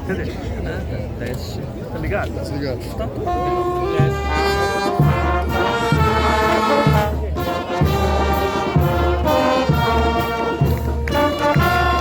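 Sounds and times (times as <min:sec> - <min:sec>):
brass band playing: 0:03.2 - 0:12.0.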